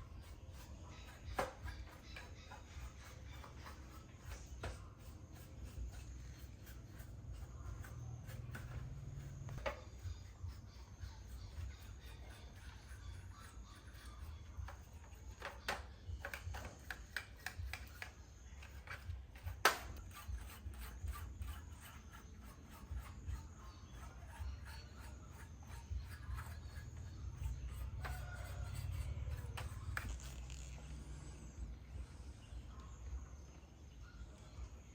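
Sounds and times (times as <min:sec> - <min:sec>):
steady low hum: 0:17.6 - 0:34.9.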